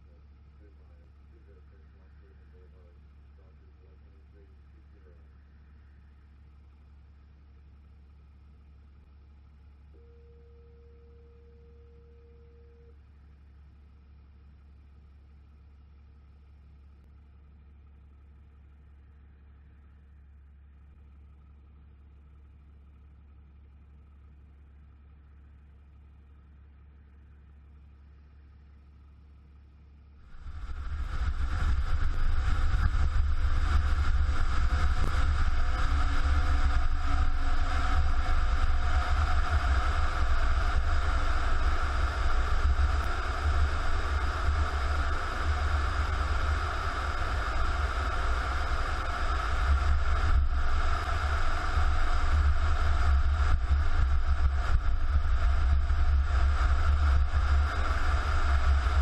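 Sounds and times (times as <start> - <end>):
vehicle engine and road noise: 13.0 - 59.0
wind noise: 30.3 - 59.0.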